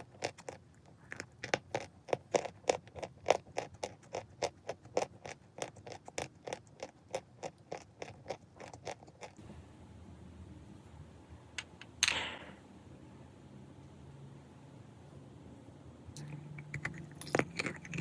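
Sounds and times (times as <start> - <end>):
chalk crunching when chewed: 0.0 - 9.4, 16.2 - 18.0.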